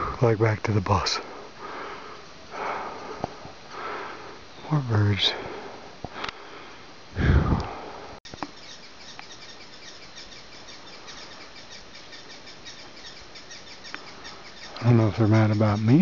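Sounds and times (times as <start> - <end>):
birds chirping: 0.0 - 16.0
outdoor background noise: 0.0 - 16.0
rush of noise on microphone: 7.1 - 8.2.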